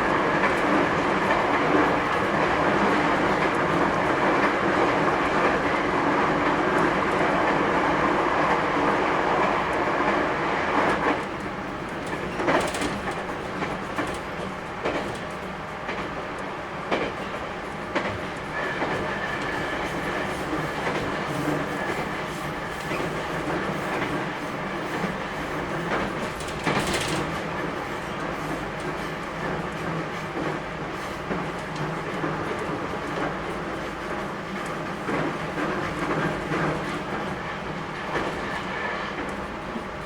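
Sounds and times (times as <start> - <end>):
electric train running noise: 0.0 - 40.0
wheels clacking over rail joints: 10.9 - 16.2, 22.9 - 30.6.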